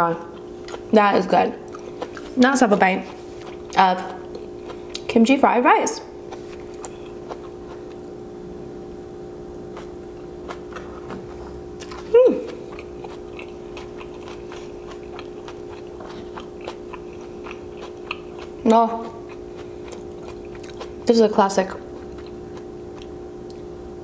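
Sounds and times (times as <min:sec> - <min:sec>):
steady low hum: 0:00.0 - 0:24.0
person chewing: 0:00.2 - 0:05.1, 0:06.1 - 0:08.3, 0:09.6 - 0:21.1, 0:21.8 - 0:23.7
person humming mm: 0:12.1 - 0:12.6.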